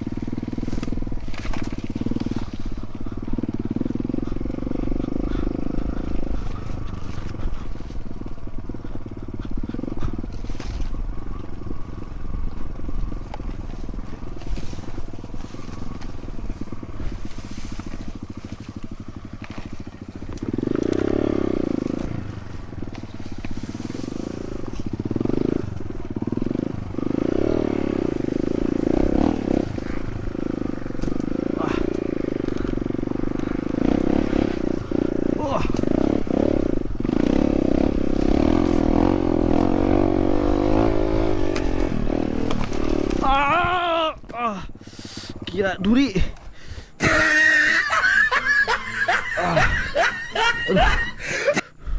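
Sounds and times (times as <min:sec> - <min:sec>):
dirt bike engine: 0:00.0 - 0:51.9.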